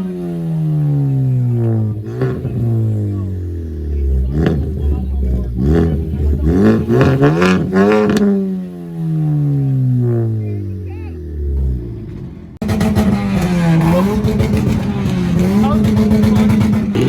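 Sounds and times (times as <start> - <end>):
car engine revving in quick blips: 0.0 - 17.0.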